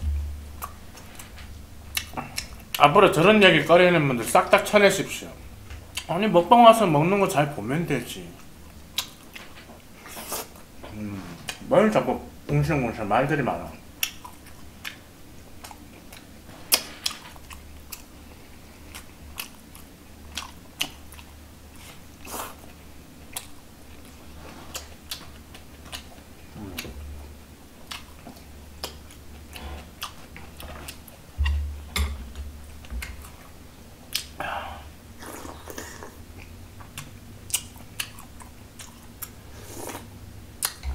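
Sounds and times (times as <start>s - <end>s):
person chewing food: 0.4s - 2.8s, 8.4s - 11.6s, 14.0s - 34.4s, 35.2s - 40.9s.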